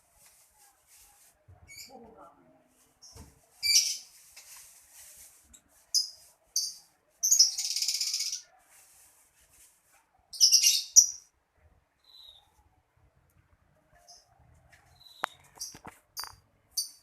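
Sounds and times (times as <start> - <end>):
bird chirping and chattering: 5.9 - 8.4, 10.4 - 11.3, 14.9 - 17.0.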